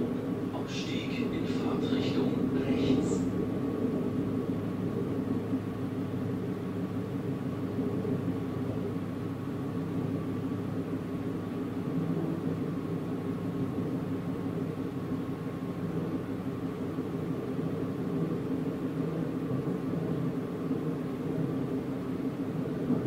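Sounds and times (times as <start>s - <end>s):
train wheels rumbling on rails: 0.0s - 4.3s.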